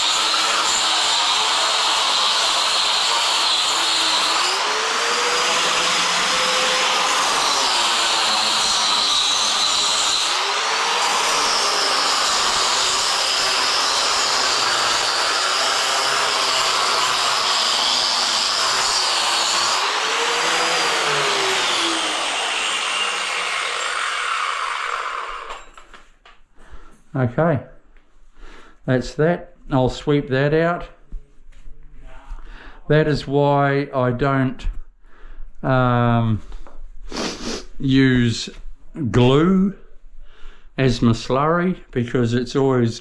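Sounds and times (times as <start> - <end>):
angle grinder grinding floor: 0.0 - 26.0.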